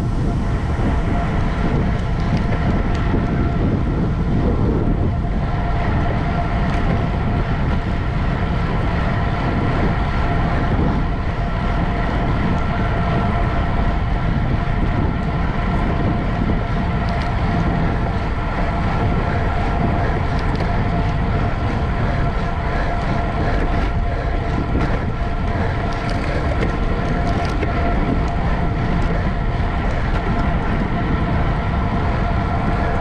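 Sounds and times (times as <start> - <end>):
bicycle road and drivetrain noise: 0.0 - 33.0
faint steady whine: 0.0 - 33.0
wind buffeting microphone: 0.0 - 33.0.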